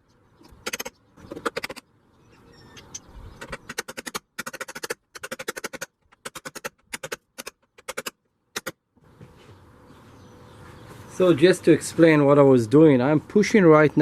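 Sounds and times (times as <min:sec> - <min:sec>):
bursts of rapid sharp clicks: 0:00.6 - 0:01.8, 0:03.4 - 0:08.8.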